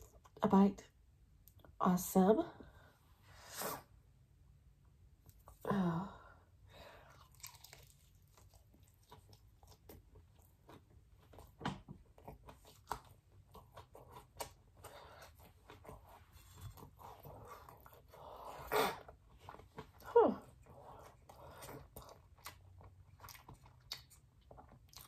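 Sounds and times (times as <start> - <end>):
crunchy chewing: 7.1 - 11.5, 20.6 - 25.0.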